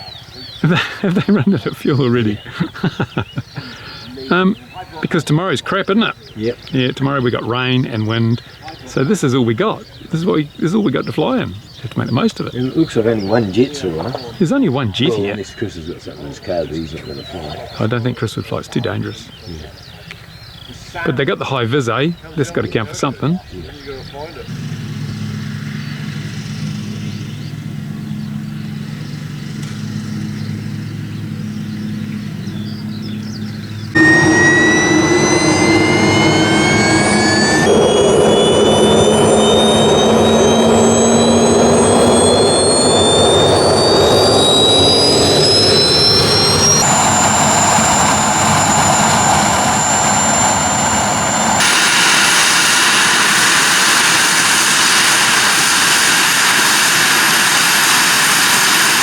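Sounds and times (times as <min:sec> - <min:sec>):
low engine hum: 0:23.7 - 0:59.0
model jet turbine spooling up: 0:33.9 - 0:59.0.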